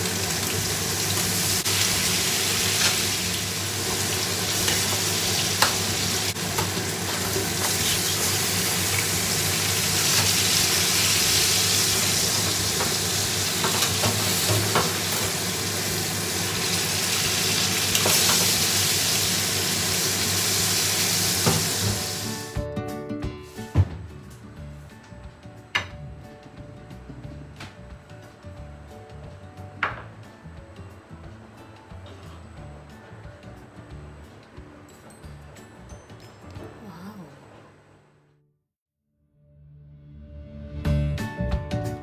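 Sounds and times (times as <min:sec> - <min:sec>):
meat sizzling in a pan: 0:00.0 - 0:22.4.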